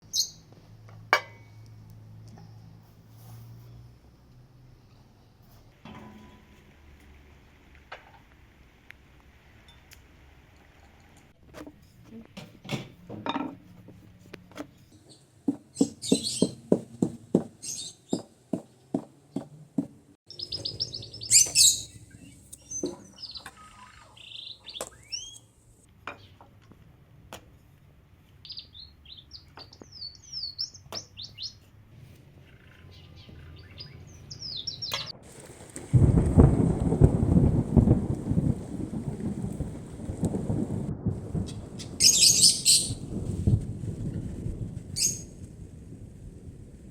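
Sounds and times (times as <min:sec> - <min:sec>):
small birds chirping: 0:00.0 - 0:00.5, 0:14.7 - 0:19.6, 0:20.3 - 0:26.4, 0:28.4 - 0:31.7, 0:32.4 - 0:35.2, 0:41.4 - 0:43.1, 0:45.0 - 0:45.3
evenly spaced knocks: 0:15.4 - 0:20.1.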